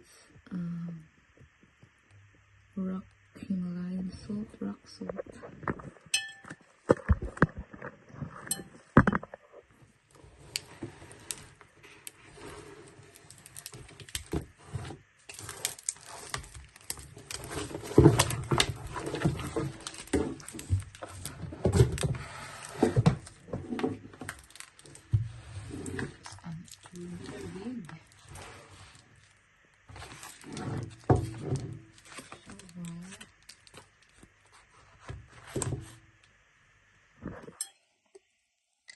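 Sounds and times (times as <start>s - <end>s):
packaging rustling: 10.1s - 35.9s
hands handling packaging clicks: 15.2s - 22.0s, 24.2s - 25.0s, 32.0s - 34.7s.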